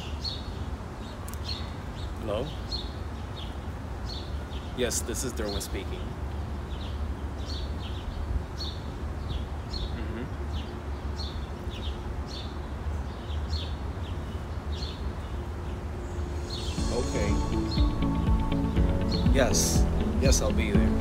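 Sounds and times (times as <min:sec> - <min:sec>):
small birds chirping: 0:00.0 - 0:21.0
steady low rumble: 0:15.8 - 0:21.0.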